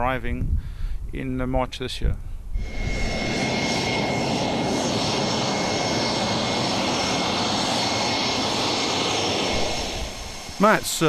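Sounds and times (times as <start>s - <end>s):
jet engine running: 2.6s - 11.0s.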